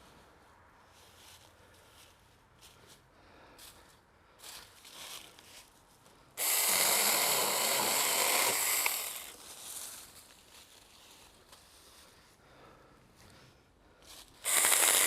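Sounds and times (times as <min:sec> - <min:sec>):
electric chainsaw cutting wood: 0:06.4 - 0:09.4, 0:14.4 - 0:15.0.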